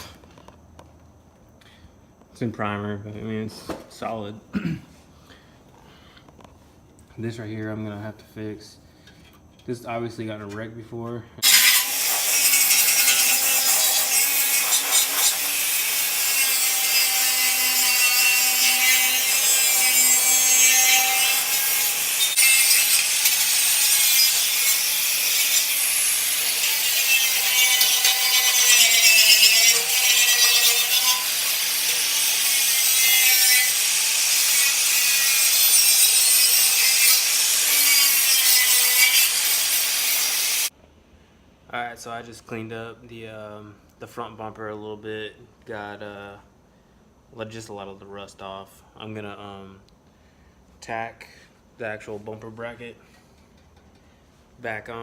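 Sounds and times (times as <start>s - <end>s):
power grinder scraping metal: 11.4s - 40.7s.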